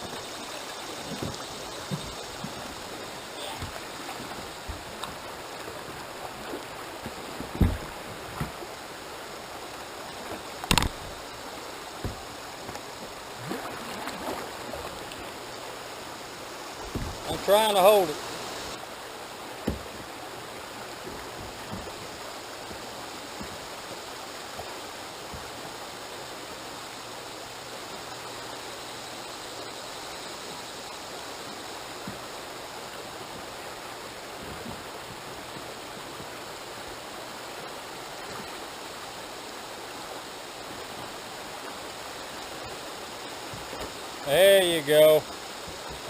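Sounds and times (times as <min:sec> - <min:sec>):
river water rushing: 0:00.0 - 0:46.0
faint knocks: 0:07.4 - 0:08.6, 0:16.8 - 0:17.4, 0:19.6 - 0:20.1.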